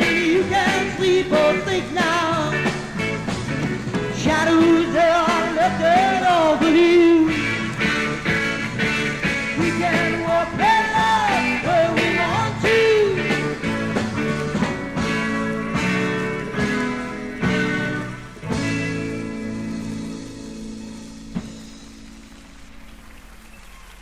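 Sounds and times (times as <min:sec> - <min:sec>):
held bending vocal or guitar line: 0:00.0 - 0:18.0
psychedelic rock band playing: 0:00.0 - 0:23.4.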